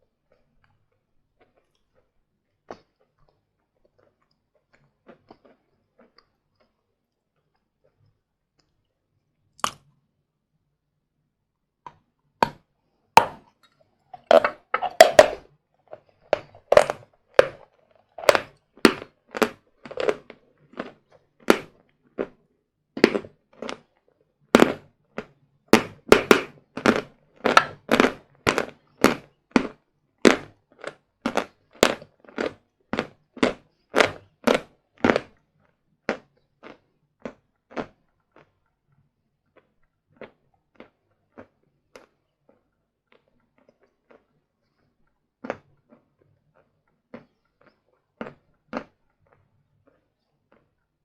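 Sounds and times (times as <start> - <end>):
chalk crunching being chewed: 13.2 - 22.4, 23.0 - 24.0, 26.7 - 51.0.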